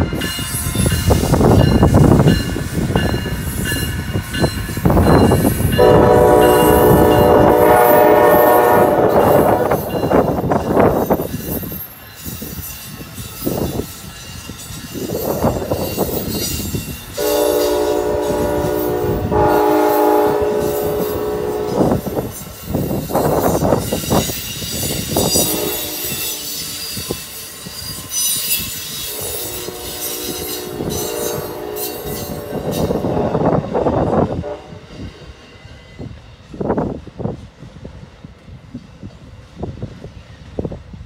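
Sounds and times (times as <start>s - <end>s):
train horn: 5.7s - 10.2s, 17.2s - 22.5s, 25.1s - 27.2s, 29.0s - 35.2s
train wheels clicking over rail joints: 8.8s - 40.9s
wheel squeal: 11.0s - 17.7s, 22.2s - 32.9s.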